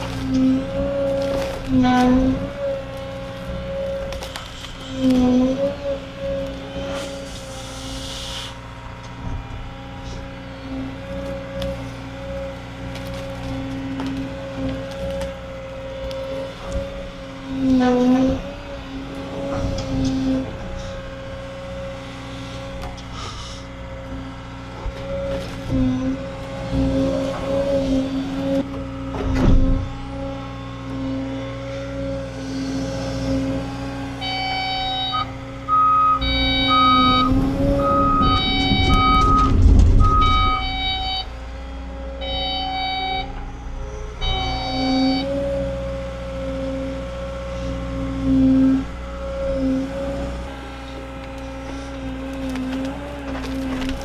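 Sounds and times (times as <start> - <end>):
excavator diesel engine: 0.0 - 54.0
hydraulic whine: 0.0 - 54.0
electronic warning alarm beeping: 34.2 - 41.6, 42.2 - 45.6.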